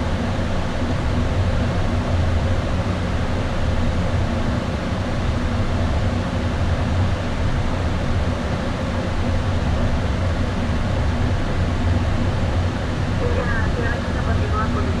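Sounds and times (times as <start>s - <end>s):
low hum: 9.8s - 15.0s
faint steady tones: 13.0s - 15.0s.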